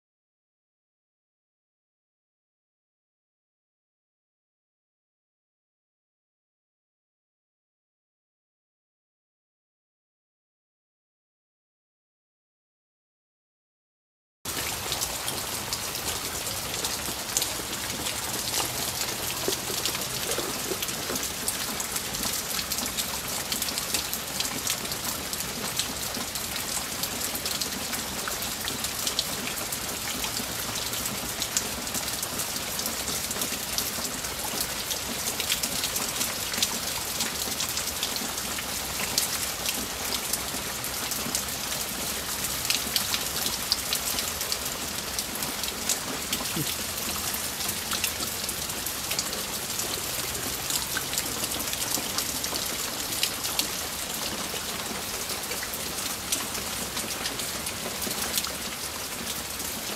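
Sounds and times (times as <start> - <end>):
rain on water and wet ground: 14.5 - 59.9.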